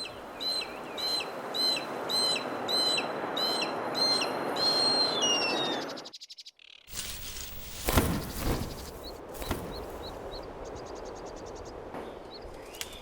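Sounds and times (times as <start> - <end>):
high bird chirps: 4.0 - 11.6
vegetation rustling: 6.9 - 10.8.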